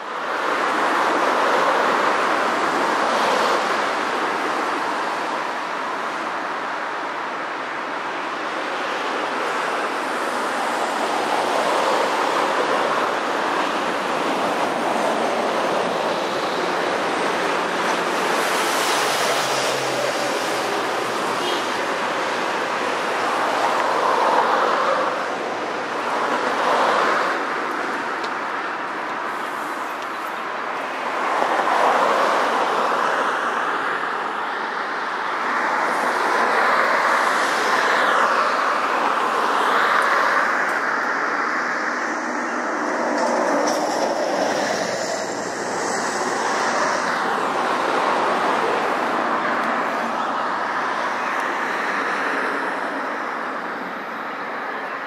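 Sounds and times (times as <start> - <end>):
freight train rumbling on track: 41.6 - 49.4.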